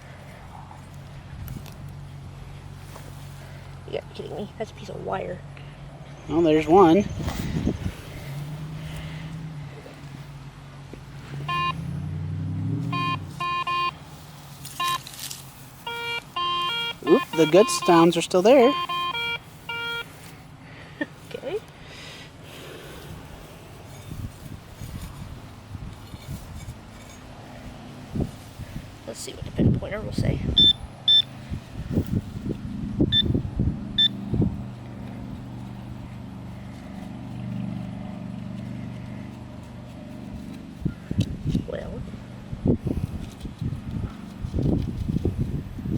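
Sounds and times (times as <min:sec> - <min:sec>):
rustling and knocking in soil: 0:00.0 - 0:03.8, 0:13.3 - 0:16.4, 0:22.4 - 0:30.1, 0:34.2 - 0:45.9
low vehicle hum: 0:00.0 - 0:45.9
metal detector beeps: 0:11.4 - 0:11.8, 0:12.9 - 0:14.0, 0:14.8 - 0:15.1, 0:15.8 - 0:20.3, 0:30.6 - 0:31.3, 0:33.1 - 0:33.4, 0:34.0 - 0:34.2.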